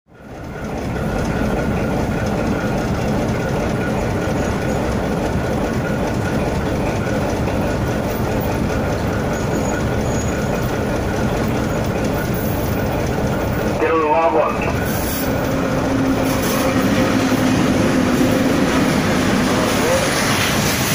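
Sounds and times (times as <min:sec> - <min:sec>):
train rumble inside carriage: 0:00.1 - 0:20.9.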